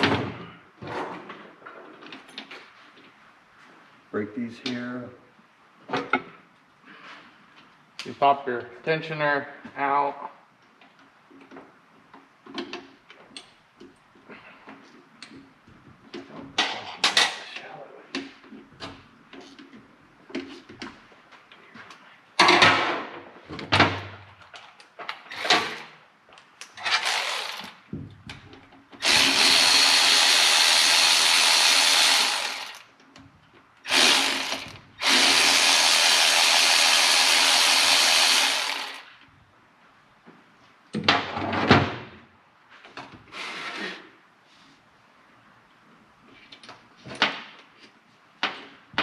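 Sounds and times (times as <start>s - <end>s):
power tool running in bursts: 26.9s - 27.7s, 29.0s - 32.8s, 33.9s - 39.1s.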